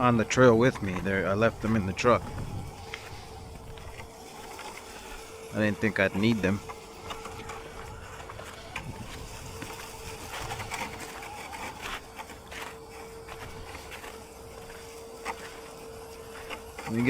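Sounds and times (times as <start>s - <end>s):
light clicks and crunches: 0.0s - 17.0s
small electric motor whine: 0.0s - 17.0s.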